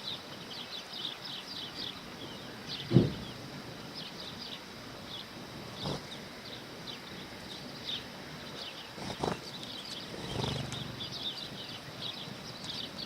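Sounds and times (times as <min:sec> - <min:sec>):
sparrows chirping: 0:00.0 - 0:13.0
sharp thump: 0:02.9 - 0:03.2.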